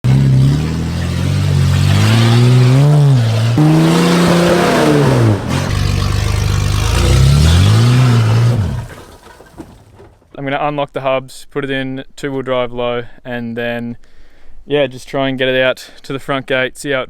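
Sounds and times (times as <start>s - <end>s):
loud engine revving: 0.0s - 9.2s.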